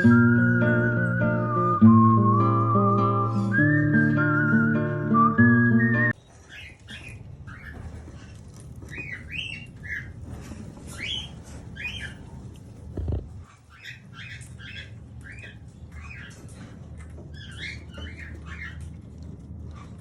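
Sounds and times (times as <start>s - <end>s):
budgerigars chirping and squawking: 6.4s - 12.4s, 13.5s - 19.0s.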